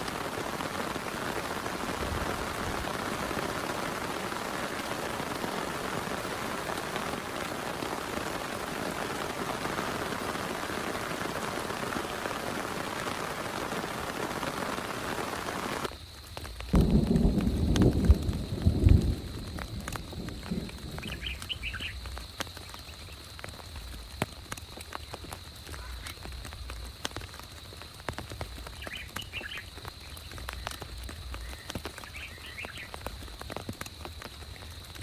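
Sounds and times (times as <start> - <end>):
rumble of thunder: 0.0 - 10.7, 16.7 - 22.3
heavy rain falling: 0.0 - 35.0.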